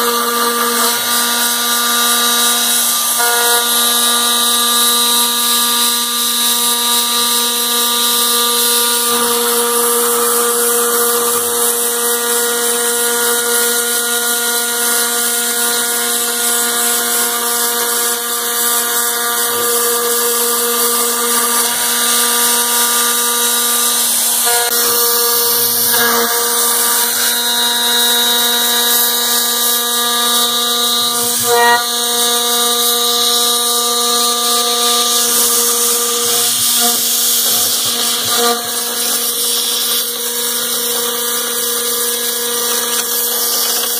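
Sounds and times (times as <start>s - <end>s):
router spindle milling metal: 0.0s - 43.9s.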